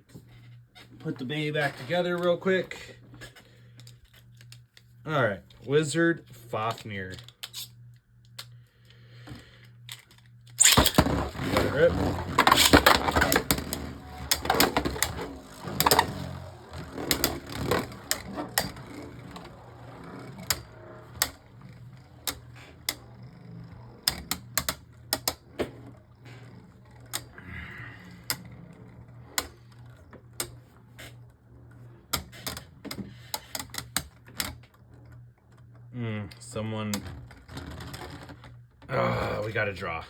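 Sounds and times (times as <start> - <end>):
spinning tops whirring and clashing: 10.6 - 27.4.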